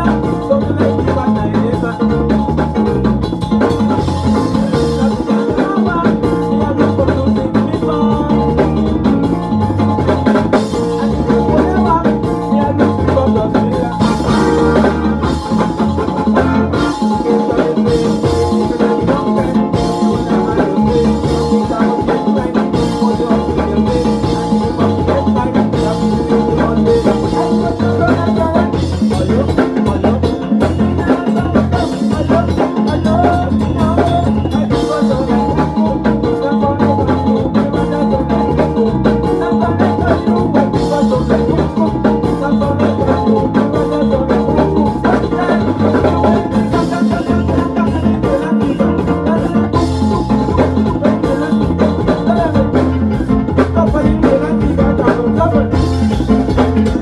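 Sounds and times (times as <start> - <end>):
loud music with drum beat: 0.0 - 57.0.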